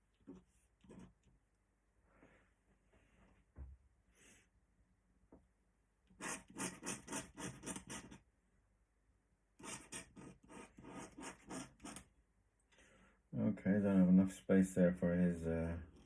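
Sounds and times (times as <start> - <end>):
pen scratching on paper: 6.2 - 8.2, 9.6 - 12.0.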